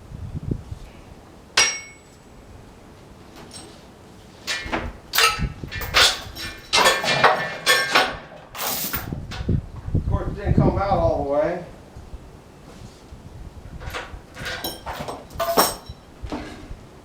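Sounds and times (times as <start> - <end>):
steel chain clanking and rattling: 3.2 - 9.6, 13.7 - 16.7.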